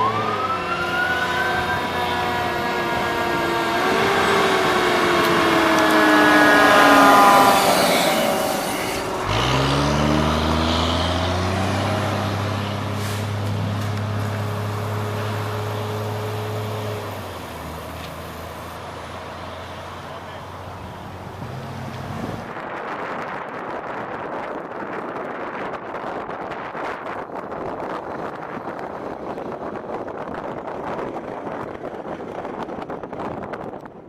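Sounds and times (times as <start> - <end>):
fire engine siren: 0.0 - 22.5
diesel truck engine pulling away: 0.0 - 22.6.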